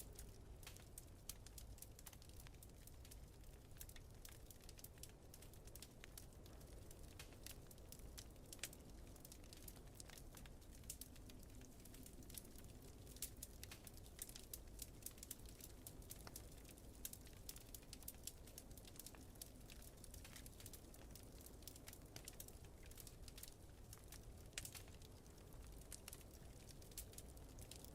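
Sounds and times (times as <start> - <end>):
low fire rumble: 0.0 - 27.9
wood fire crackling and popping: 0.0 - 27.9.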